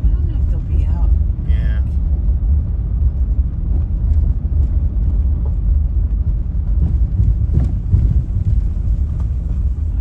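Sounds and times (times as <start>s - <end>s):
car rolling on gravel: 0.0s - 10.0s.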